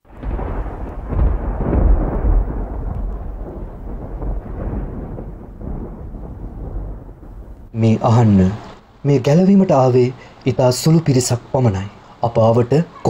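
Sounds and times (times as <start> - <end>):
thunder crack and rumble: 0.0 - 9.7.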